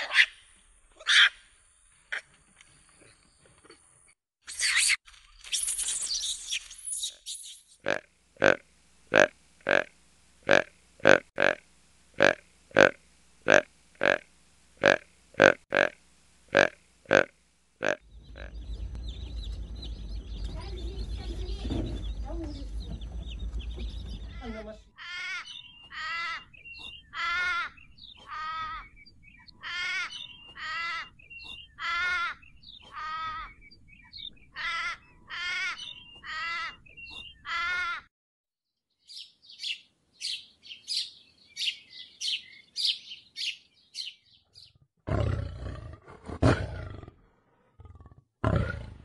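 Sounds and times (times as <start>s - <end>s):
chicks peeping: 17.8s - 24.6s
lion roaring: 45.1s - 49.0s.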